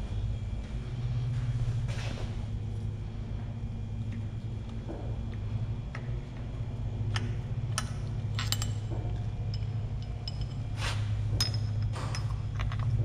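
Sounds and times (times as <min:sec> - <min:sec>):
steady low hum: 0:00.0 - 0:13.0
metal tools clinking: 0:07.7 - 0:13.0.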